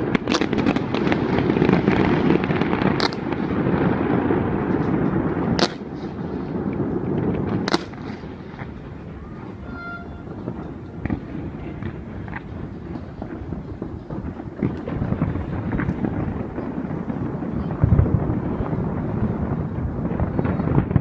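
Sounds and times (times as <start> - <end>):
fireworks booming: 0.0 - 21.0.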